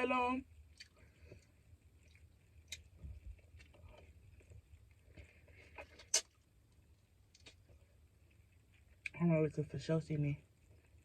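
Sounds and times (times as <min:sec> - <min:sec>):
person chewing food: 0:00.6 - 0:09.2.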